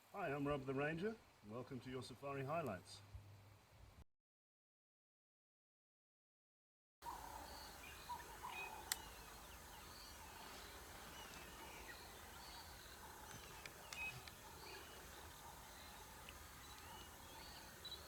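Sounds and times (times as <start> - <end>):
background hiss: 0.0 - 4.0, 7.0 - 18.0
wild birds chirping: 7.0 - 18.0.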